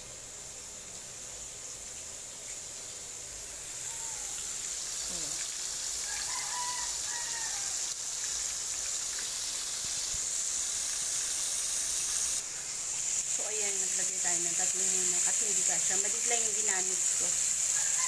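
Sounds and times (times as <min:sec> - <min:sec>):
chicken sizzling in oil: 0:00.0 - 0:18.0
rooster crowing: 0:03.7 - 0:04.6, 0:05.9 - 0:08.0, 0:17.6 - 0:18.0.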